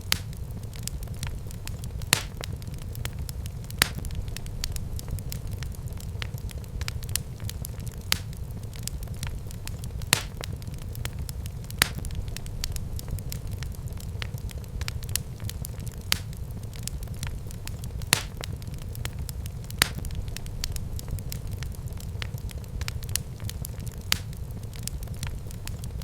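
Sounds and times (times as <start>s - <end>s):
fire crackles and pops: 0.0s - 26.0s
wood fire burning: 0.0s - 26.0s.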